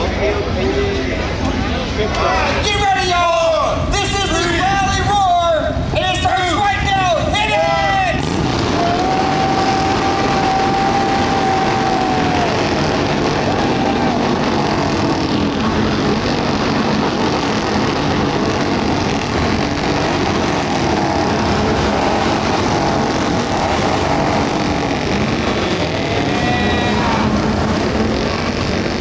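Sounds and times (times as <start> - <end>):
motorcycles revving: 7.2 - 29.0.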